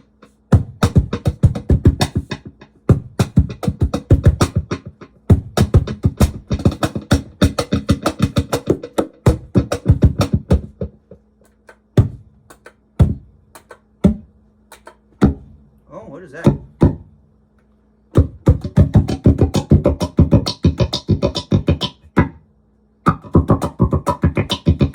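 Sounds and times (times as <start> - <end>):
faint steady hum: 0.0 - 24.9
cajon hand strikes: 0.2 - 15.5, 16.4 - 17.1.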